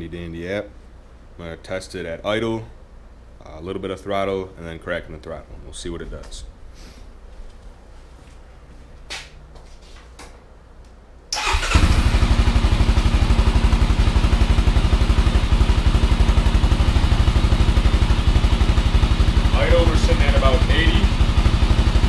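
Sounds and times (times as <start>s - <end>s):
quad bike engine starting and idling: 11.4s - 22.0s.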